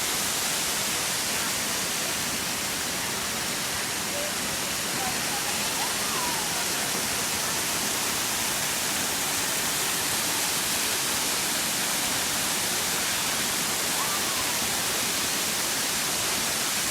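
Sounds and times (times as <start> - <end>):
waterfall roaring: 0.0 - 16.9.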